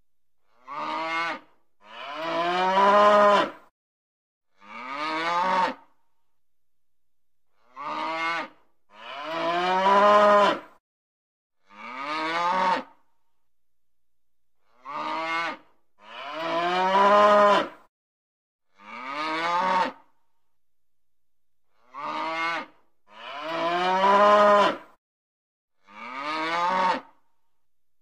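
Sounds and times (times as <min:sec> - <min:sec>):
cows mooing: 0:00.7 - 0:03.6, 0:04.6 - 0:05.8, 0:07.7 - 0:10.7, 0:11.7 - 0:12.9, 0:14.8 - 0:17.7, 0:18.8 - 0:20.0, 0:21.9 - 0:24.9, 0:25.9 - 0:27.0.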